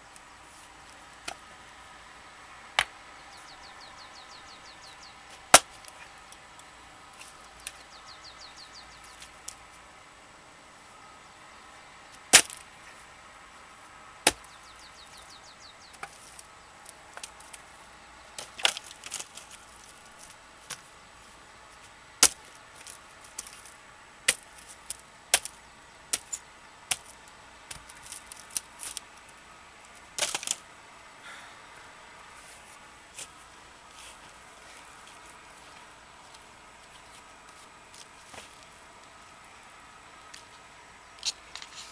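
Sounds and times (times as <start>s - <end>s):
axe striking logs: 5.5s - 5.9s, 12.3s - 12.7s, 14.2s - 14.5s, 22.2s - 23.6s, 24.3s - 27.1s, 30.2s - 30.6s.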